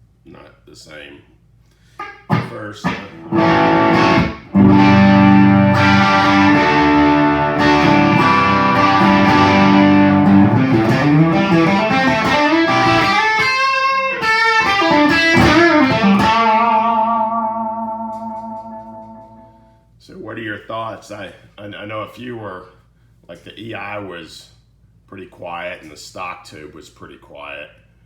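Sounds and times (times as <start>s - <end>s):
electric guitar playing: 2.0s - 19.8s.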